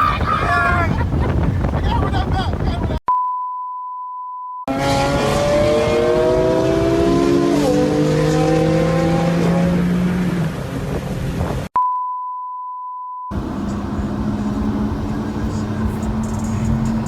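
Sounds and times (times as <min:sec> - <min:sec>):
car engine accelerating hard: 0:04.7 - 0:11.2, 0:13.3 - 0:17.0.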